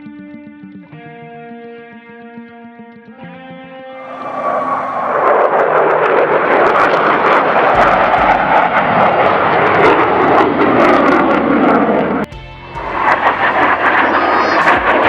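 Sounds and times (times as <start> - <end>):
jet engine roaring with crackle: 4.0 - 15.0.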